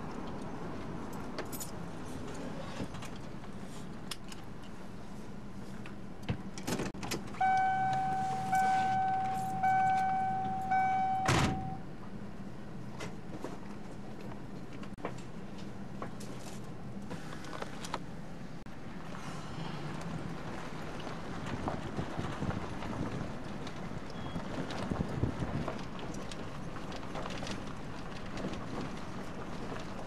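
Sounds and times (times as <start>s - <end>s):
vehicle low hum: 0.0s - 30.0s
car warning chime: 7.4s - 11.8s.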